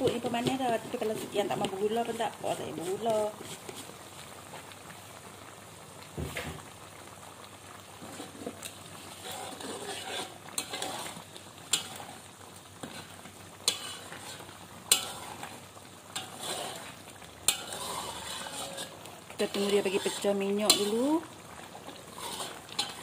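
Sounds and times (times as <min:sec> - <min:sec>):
metal spoon scraping a wok: 0:00.0 - 0:03.9, 0:08.0 - 0:21.2, 0:21.9 - 0:23.0
paste sizzling in oil: 0:00.0 - 0:23.0.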